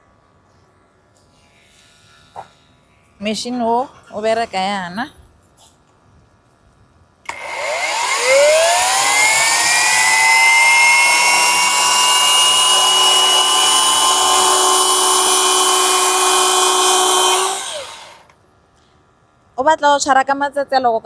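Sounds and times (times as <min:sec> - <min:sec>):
circular saw motor whining: 0:07.3 - 0:18.3.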